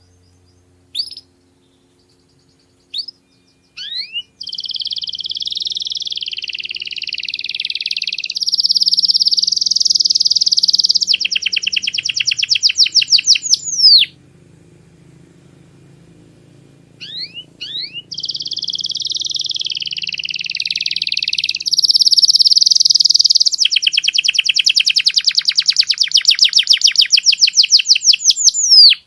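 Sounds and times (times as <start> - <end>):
canary singing: 0.0 - 29.0.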